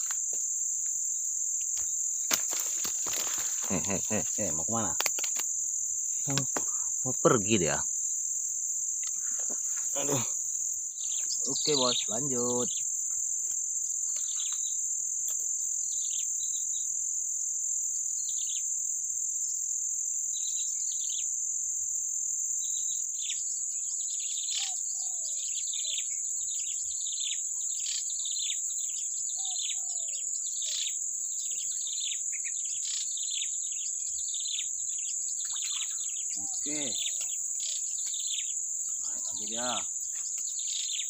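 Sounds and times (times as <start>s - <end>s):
high-pitched insect drone: 0.0s - 41.0s
birds chirping: 1.1s - 14.9s, 22.7s - 41.0s.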